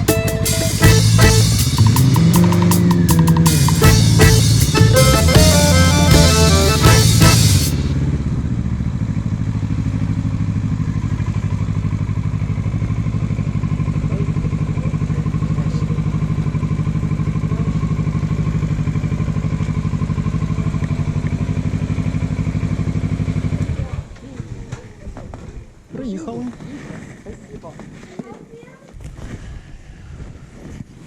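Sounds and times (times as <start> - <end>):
music track: 0.0 - 8.0
motorcycle engine running: 0.0 - 24.1.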